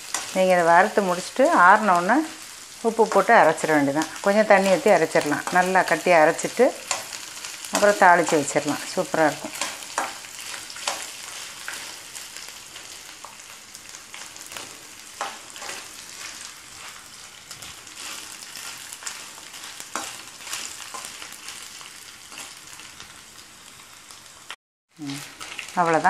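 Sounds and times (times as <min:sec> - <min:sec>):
spatula stirring: 0:00.0 - 0:00.4, 0:04.6 - 0:22.6
food sizzling in oil: 0:00.0 - 0:26.0.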